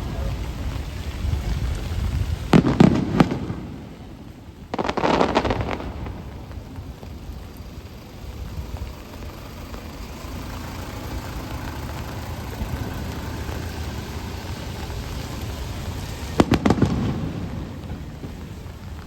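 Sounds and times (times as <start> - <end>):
fireworks rumbling bursts: 0.0 - 19.0
sharp crackling firework bangs: 0.0 - 19.0.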